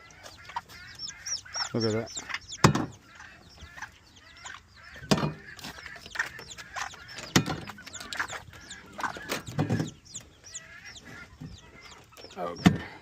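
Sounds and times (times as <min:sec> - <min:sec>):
chicks peeping: 0:00.0 - 0:13.0
hen clucking: 0:00.0 - 0:13.0
knocks: 0:02.6 - 0:03.0, 0:05.0 - 0:05.4.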